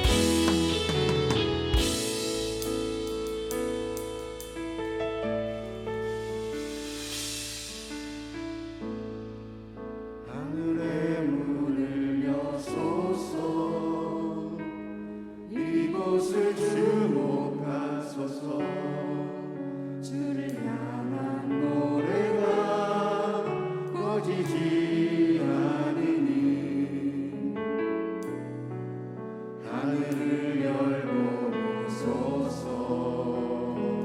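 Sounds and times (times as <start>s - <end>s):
group singing worship song: 0.0s - 3.5s, 10.2s - 28.4s, 29.5s - 34.0s
sustained instrumental chords: 0.0s - 8.6s
sharp percussion hits: 0.0s - 9.0s.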